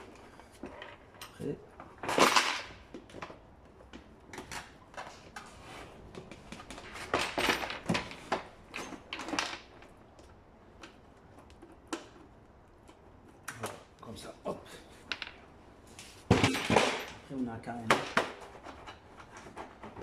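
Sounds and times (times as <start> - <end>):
clicks and knocks of parts: 0.0 - 5.5, 6.1 - 14.0.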